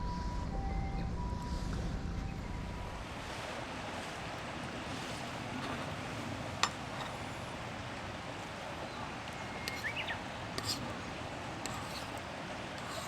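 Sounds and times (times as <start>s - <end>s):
rushing water: 2.8s - 13.0s.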